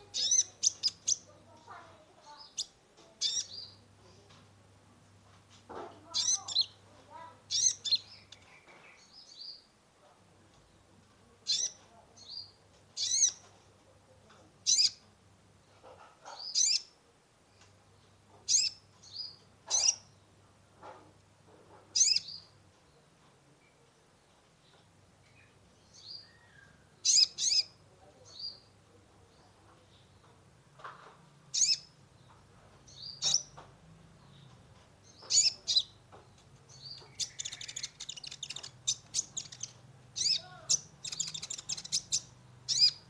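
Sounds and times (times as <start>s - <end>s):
sunbird singing: 0.0s - 4.3s, 6.1s - 9.7s, 11.5s - 13.5s, 16.4s - 16.9s, 22.0s - 23.0s, 24.7s - 28.7s, 31.5s - 33.6s, 34.2s - 43.0s.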